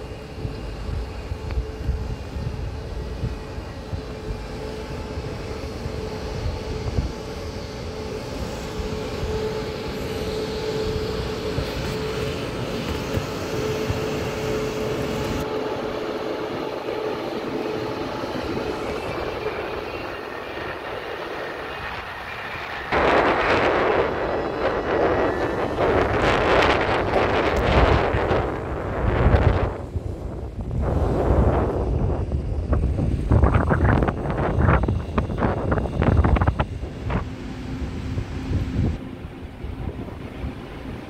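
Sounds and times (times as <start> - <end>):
train rumbling: 0.0 - 41.0
train whine: 0.0 - 41.0
loud rushing noise: 13.7 - 39.0.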